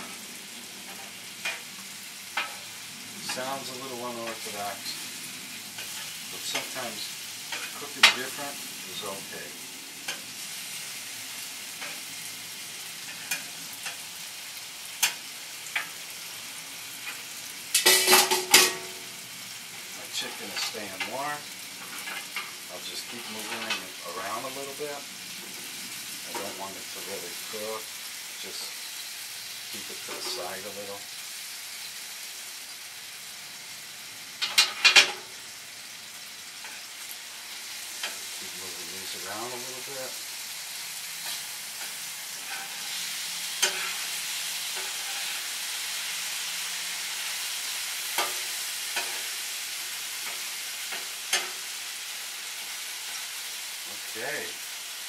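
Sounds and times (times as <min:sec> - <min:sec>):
food sizzling on griddle: 0:00.0 - 0:55.0
ringing scrape across griddle: 0:41.2 - 0:45.5
spatula clicking on griddle: 0:50.2 - 0:51.6.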